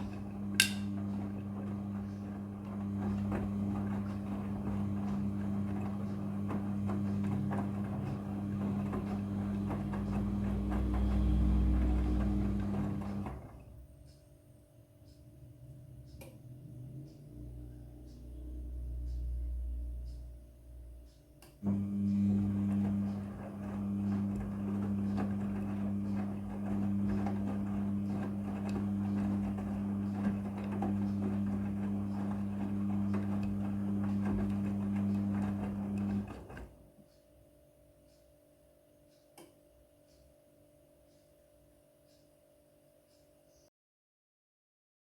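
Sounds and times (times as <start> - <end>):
pump humming: 0.0 - 13.5, 21.6 - 36.5
washing machine low rumble: 0.0 - 37.0.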